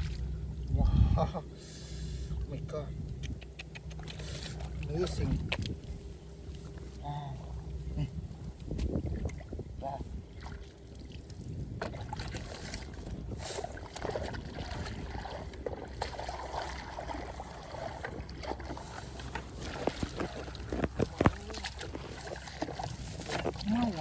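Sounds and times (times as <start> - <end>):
muddy water splashing: 0.0 - 0.4, 3.1 - 24.0
low rumble: 0.0 - 24.0.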